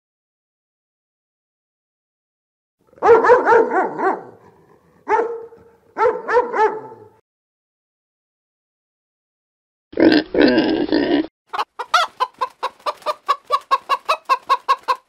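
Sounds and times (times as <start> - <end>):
dog barking: 3.0 - 7.2.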